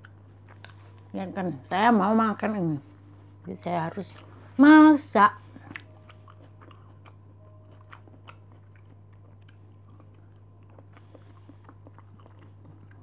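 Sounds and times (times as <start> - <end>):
faint chewing: 0.0 - 1.2, 3.3 - 4.6, 5.3 - 13.0
steady low hum: 0.0 - 13.0.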